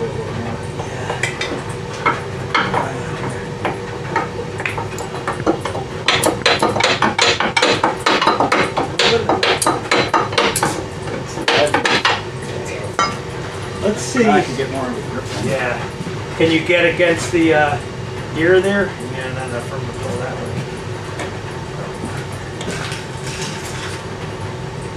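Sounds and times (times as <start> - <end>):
hammer striking metal: 3.6 - 10.8.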